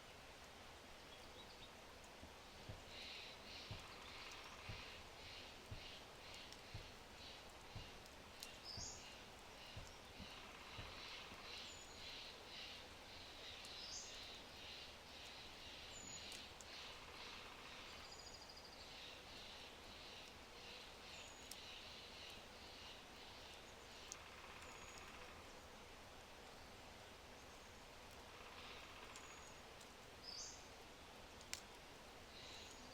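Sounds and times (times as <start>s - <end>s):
fire crackling: 0.0s - 32.8s
faint birdsong: 0.0s - 32.9s
soft fire pops: 1.5s - 12.3s, 27.5s - 30.2s, 31.2s - 32.0s.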